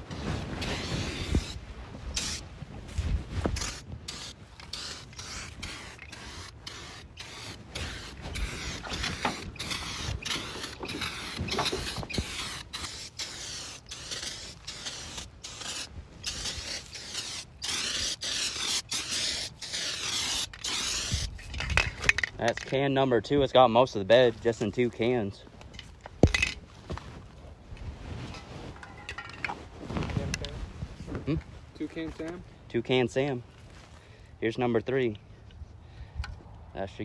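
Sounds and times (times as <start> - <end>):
aerosol spray paint hissing: 3.6 - 21.3.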